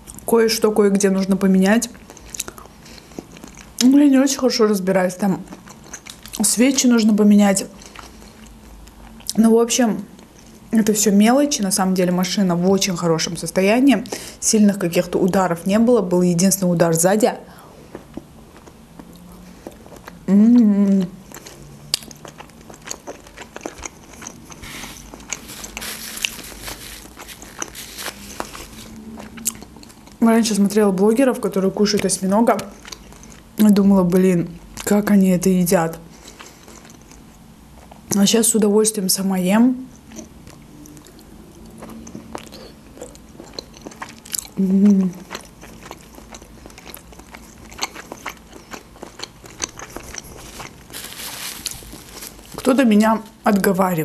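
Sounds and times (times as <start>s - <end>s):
chewing with mouth clicks: 2.0s - 4.0s, 5.4s - 6.9s, 7.7s - 9.4s, 17.9s - 30.2s, 32.0s - 33.5s, 36.1s - 38.1s, 39.9s - 52.8s.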